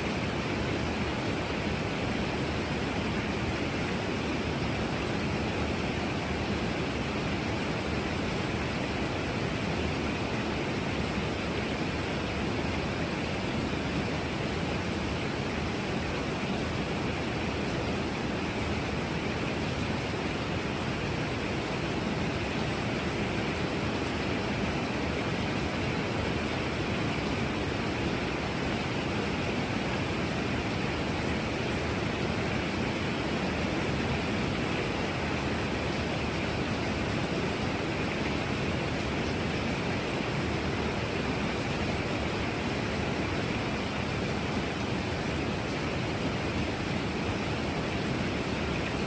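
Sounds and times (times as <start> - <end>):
heavy rain falling: 0.0 - 49.0.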